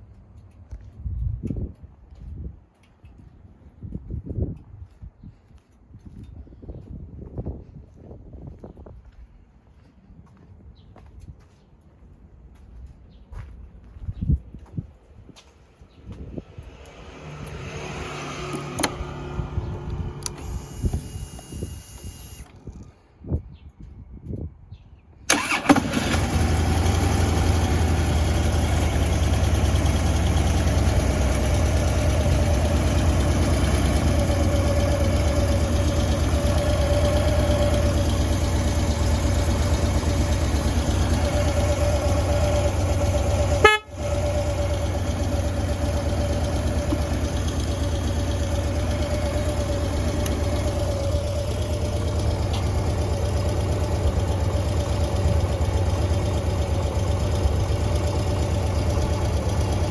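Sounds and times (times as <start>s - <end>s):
motorcycle engine idling: 25.3s - 59.9s.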